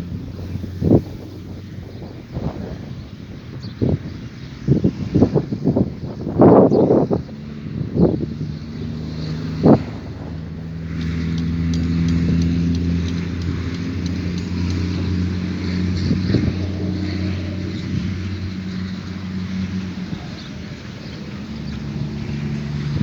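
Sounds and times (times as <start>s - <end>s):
motor engine running: 4.6s - 23.0s.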